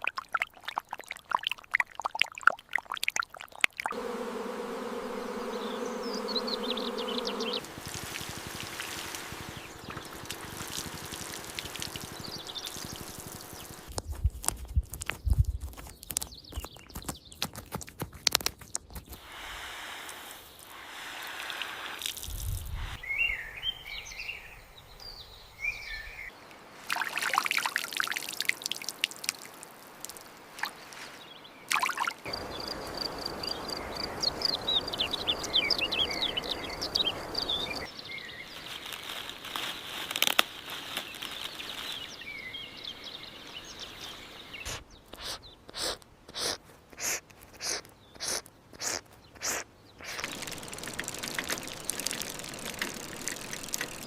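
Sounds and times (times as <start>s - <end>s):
small birds chirping: 3.6s - 19.4s, 20.1s - 54.0s
steady rushing pouring noise: 3.9s - 13.9s, 32.2s - 37.9s, 50.2s - 54.0s
scattered clicks: 50.1s - 54.0s.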